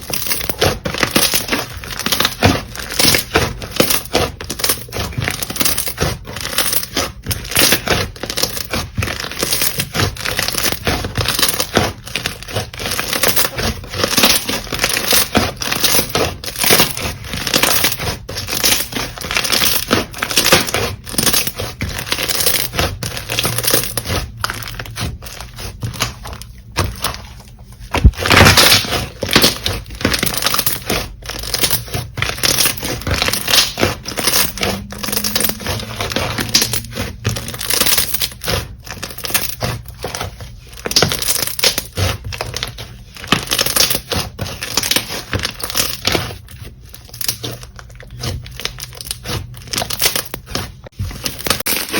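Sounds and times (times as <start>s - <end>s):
slime crackling and popping: 27.9s - 51.9s.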